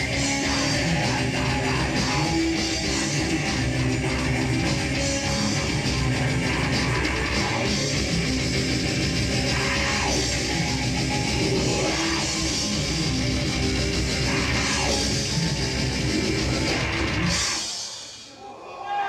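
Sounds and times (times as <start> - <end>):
heavy metal band playing: 0.0 - 18.3.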